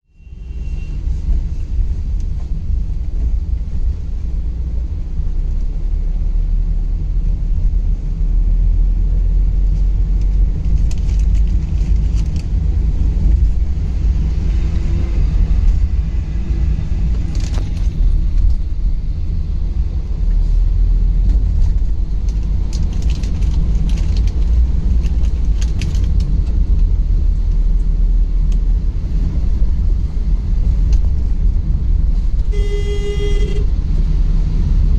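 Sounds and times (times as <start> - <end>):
road and engine rumble: 0.0 - 34.9.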